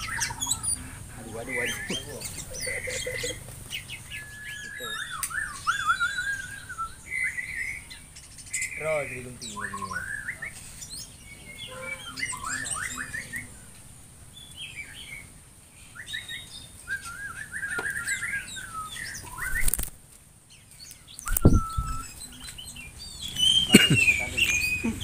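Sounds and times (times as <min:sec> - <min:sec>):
birds chirping: 0:00.0 - 0:25.0
bird wings flapping: 0:19.2 - 0:20.0, 0:21.2 - 0:22.0.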